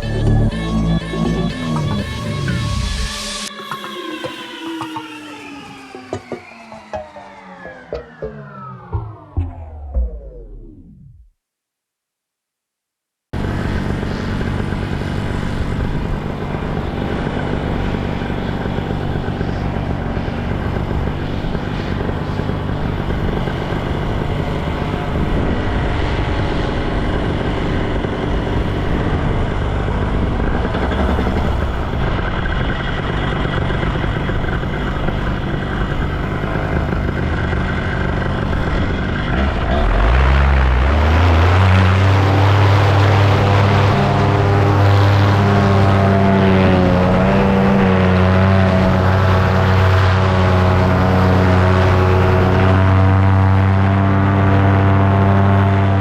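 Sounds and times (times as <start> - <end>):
paramotor engine and propeller: 1.5 - 11.0, 13.4 - 56.0.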